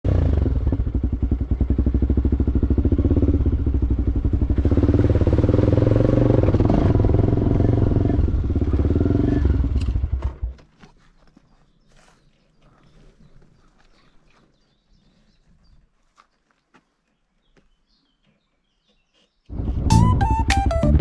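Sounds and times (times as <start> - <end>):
motorcycle engine running: 0.1 - 10.5.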